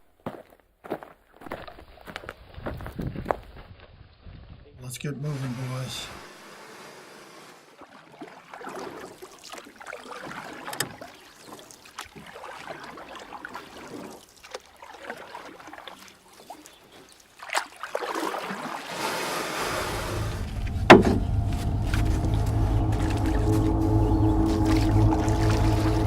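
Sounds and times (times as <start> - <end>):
oars dipping and splashing: 5.3 - 26.0
sharp knocks: 20.4 - 22.3.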